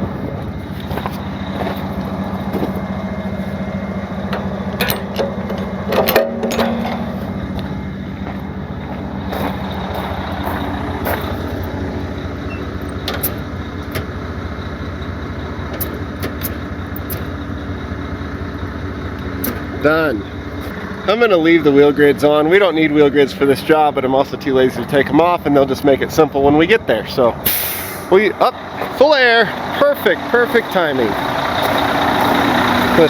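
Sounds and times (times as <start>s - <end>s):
diesel engine idling: 0.0s - 33.0s
metallic clanks and clicks: 4.2s - 11.8s, 12.4s - 14.2s, 15.6s - 17.5s, 19.1s - 19.9s.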